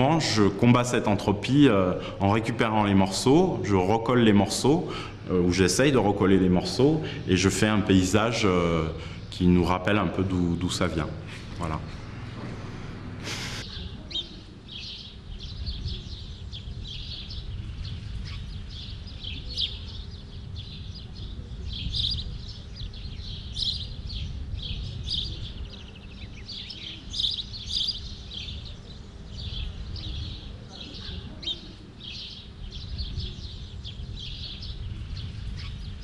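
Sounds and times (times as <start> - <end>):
brief hiss: 12.4 - 13.6
small birds chirping: 13.2 - 36.0.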